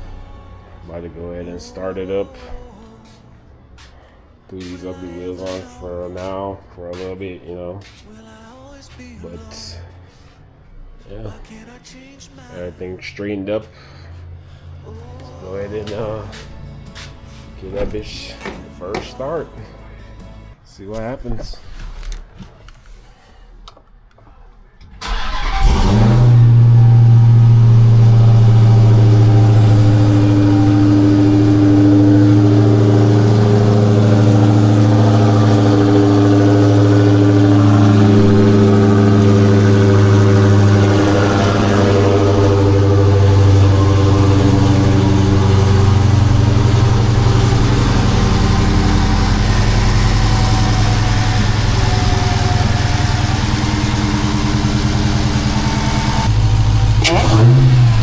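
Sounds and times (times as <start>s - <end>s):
engine starting and idling: 24.8s - 58.0s.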